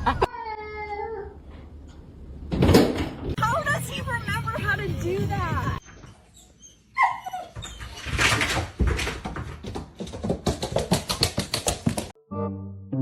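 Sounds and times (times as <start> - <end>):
music: 3.4 - 5.8, 12.2 - 13.0
dog whining: 6.1 - 8.2.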